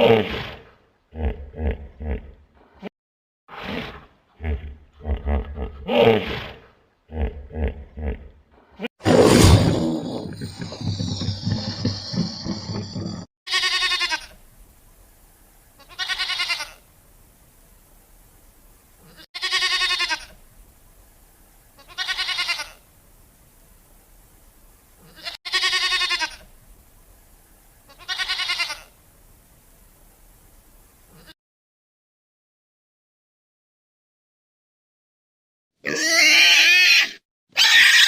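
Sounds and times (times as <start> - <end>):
rough animal sound: 3.5 - 13.3
goat bleating: 13.5 - 14.4, 15.8 - 16.8, 19.1 - 20.4, 21.8 - 22.8, 25.0 - 26.5, 27.9 - 29.0, 35.8 - 38.0.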